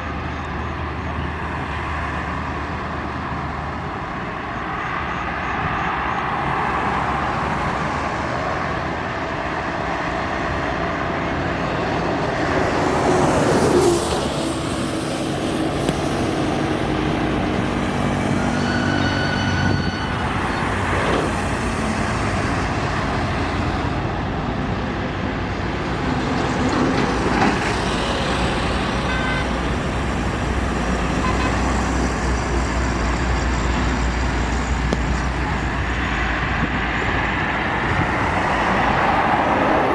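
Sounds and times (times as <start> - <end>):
highway traffic: 0.0 - 39.9.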